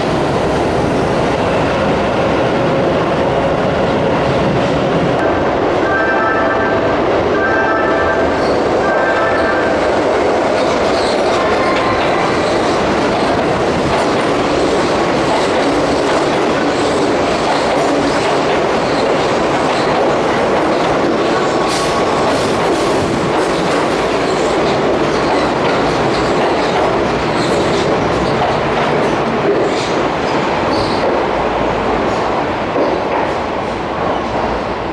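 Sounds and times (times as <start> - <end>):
electric train rumbling: 0.0 - 34.9
wheels clacking over rail joints: 10.4 - 31.3.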